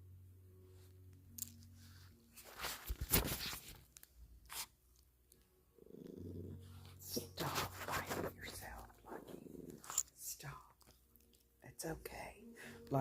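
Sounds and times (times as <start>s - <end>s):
crunching rustling noise: 2.2s - 4.7s
cat purring: 5.7s - 11.3s.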